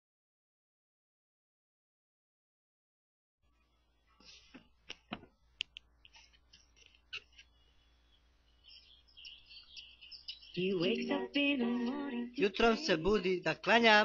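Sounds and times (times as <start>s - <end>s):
birds chirping: 5.9s - 14.0s.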